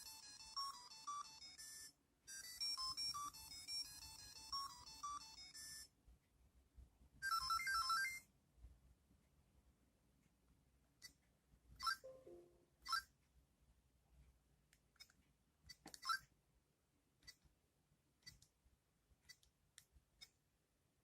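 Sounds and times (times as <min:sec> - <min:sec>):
beeping electronic jingle: 0:12.0 - 0:12.6.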